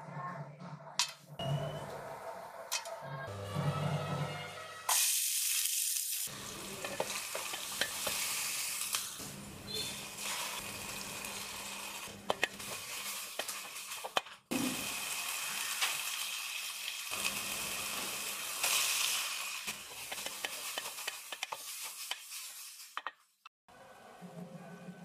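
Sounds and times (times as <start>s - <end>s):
onions sizzling in oil: 4.9s - 23.0s.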